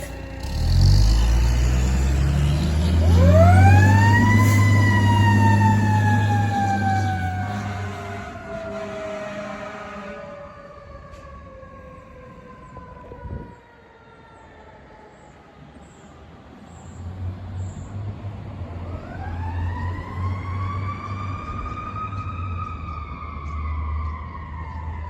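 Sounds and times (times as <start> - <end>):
fire truck engine rumbling: 0.0 - 25.0
mechanical siren wailing: 3.0 - 15.3, 18.8 - 25.0.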